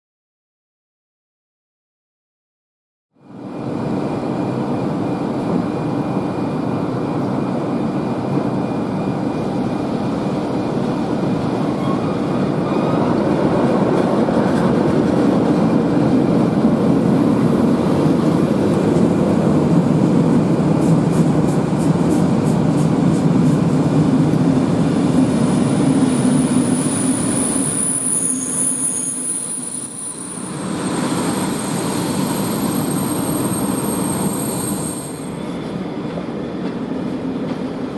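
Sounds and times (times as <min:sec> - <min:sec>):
train wheels rumbling on rails: 0:03.4 - 0:37.9
high wheel squeal: 0:25.3 - 0:36.0.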